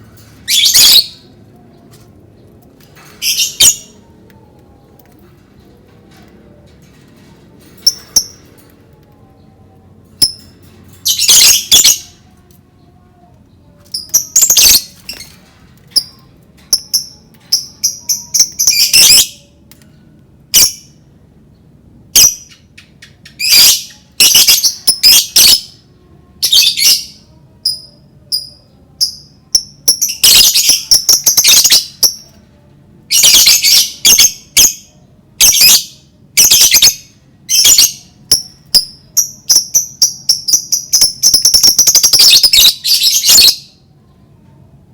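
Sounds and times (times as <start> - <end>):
lovebirds chirping and squawking: 0.0 - 5.5, 6.1 - 12.5, 13.6 - 19.6, 22.2 - 25.8, 33.1 - 43.8.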